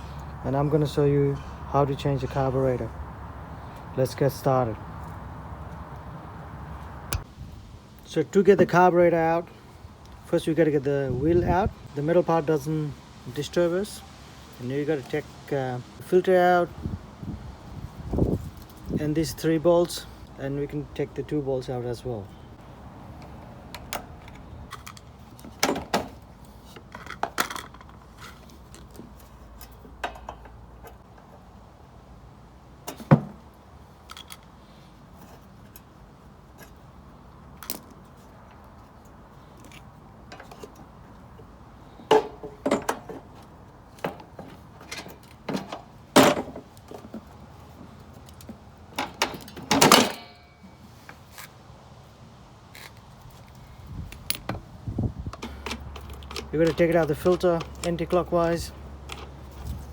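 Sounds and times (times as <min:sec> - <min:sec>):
metal tools clinking and knocking: 0:49.0 - 0:50.8.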